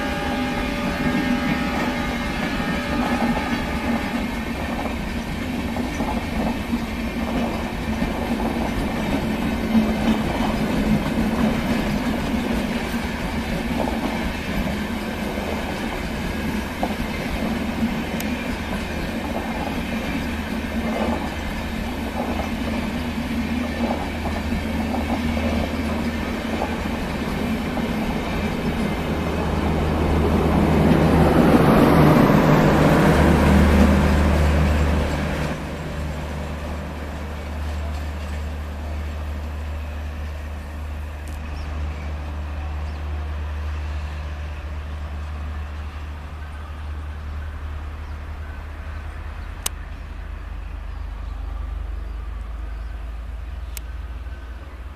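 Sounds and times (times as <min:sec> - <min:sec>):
train rumble: 0:00.0 - 0:54.9
wheels clicking over rail joints: 0:02.9 - 0:41.6.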